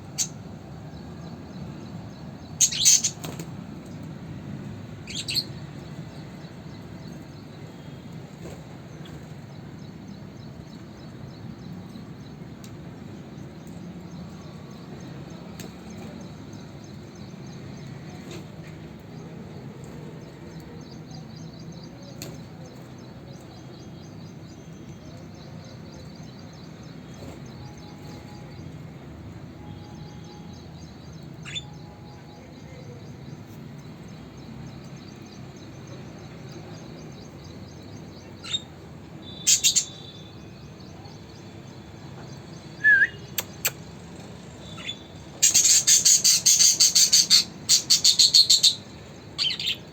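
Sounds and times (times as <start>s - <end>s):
budgerigars chirping and chattering: 2.6s - 3.2s, 39.4s - 40.1s, 44.7s - 49.8s.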